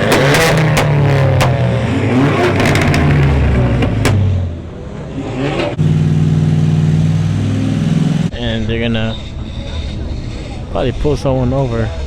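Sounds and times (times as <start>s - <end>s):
car engine revving hard: 0.0s - 8.3s.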